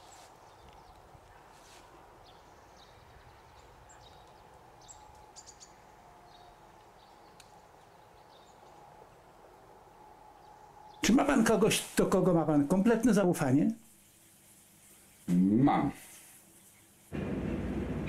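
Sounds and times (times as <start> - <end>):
small birds chirping: 0.0 - 11.5, 13.9 - 17.1
steady low hum: 17.1 - 18.0.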